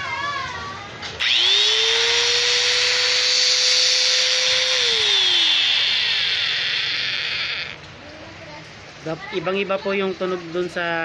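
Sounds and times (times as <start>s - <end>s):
electric grinder whining: 1.2s - 7.9s.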